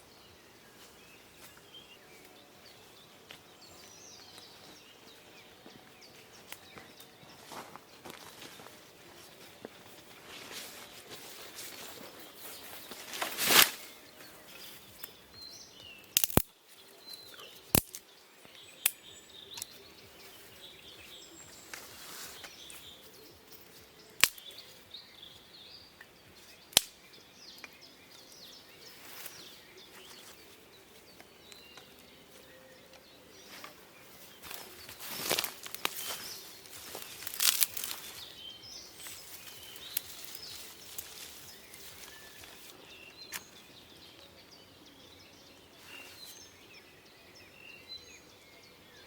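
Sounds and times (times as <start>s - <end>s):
birds chirping faintly: 0.0s - 49.0s
brief rustle: 10.6s - 13.9s.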